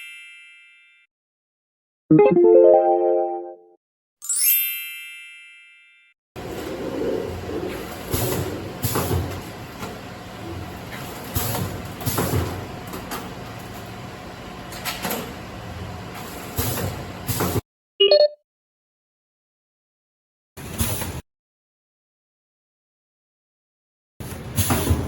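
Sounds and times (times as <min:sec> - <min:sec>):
packing machine hum: 0:06.4 - 0:17.3.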